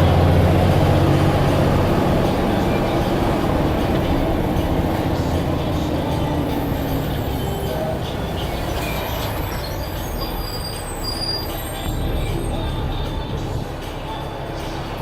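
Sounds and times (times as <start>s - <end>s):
bus engine rumble: 0.0s - 15.0s
high squeaks: 4.0s - 13.3s.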